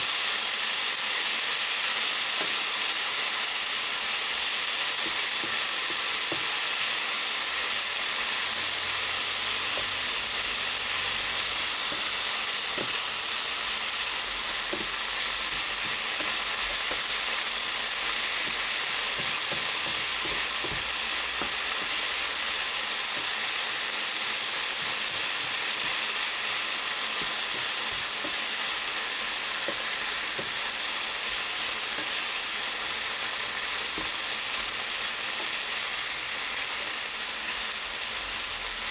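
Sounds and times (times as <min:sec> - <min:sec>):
food sizzling in a pan: 0:00.0 - 0:38.9.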